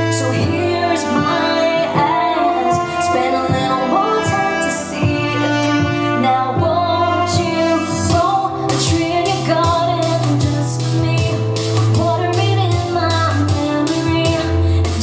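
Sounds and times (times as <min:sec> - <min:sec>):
instrumental accompaniment: 0:00.0 - 0:15.0
woman singing: 0:00.0 - 0:15.0.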